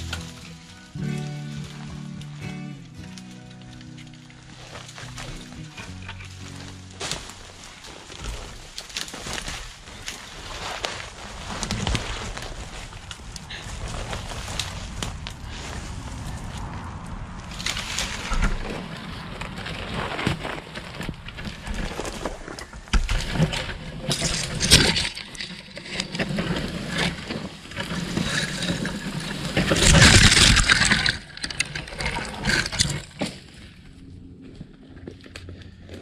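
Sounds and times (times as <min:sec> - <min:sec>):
branches snapping: 0:00.0 - 0:33.7
branches rustling and scraping: 0:00.0 - 0:36.0.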